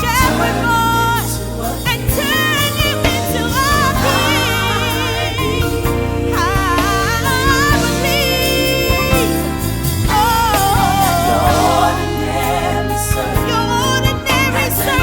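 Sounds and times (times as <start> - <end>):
sustained backing chords: 0.0 - 15.0.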